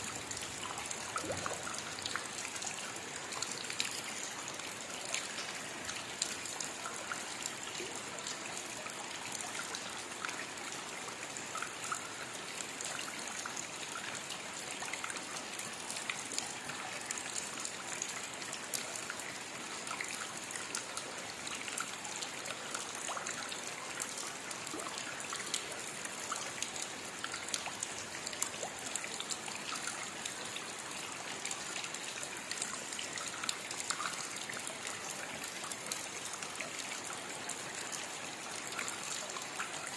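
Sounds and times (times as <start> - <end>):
hiss of steady rain: 0.0 - 39.9.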